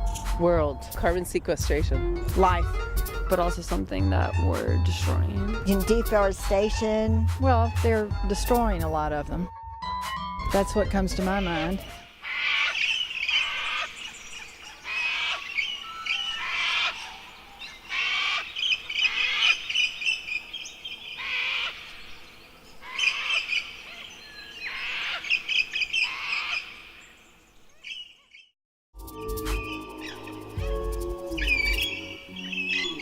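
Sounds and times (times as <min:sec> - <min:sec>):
bird calling quick repeated notes: 0:29.5 - 0:33.0.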